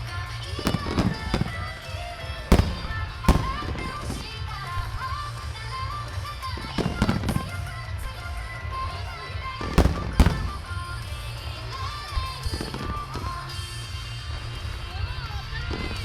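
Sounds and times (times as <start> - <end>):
firework shells bursting: 0.6 - 5.6, 9.6 - 11.5.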